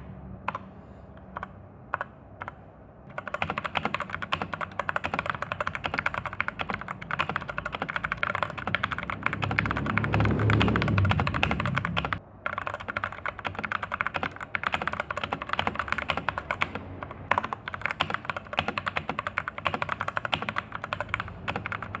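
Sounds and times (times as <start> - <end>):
fast mechanical keyboard typing: 1.4 - 22.0
low rumble: 9.8 - 12.2.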